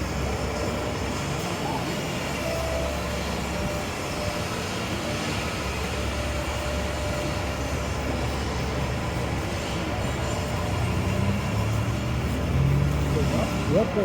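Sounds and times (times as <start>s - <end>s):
machinery: 0.0s - 14.0s
passing traffic engines: 0.0s - 14.0s.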